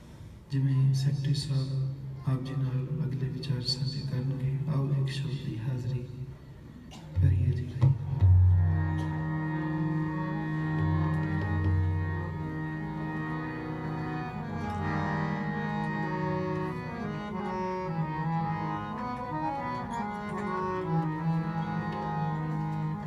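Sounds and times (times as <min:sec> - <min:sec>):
harmonium playing slow melody: 0:08.2 - 0:23.0.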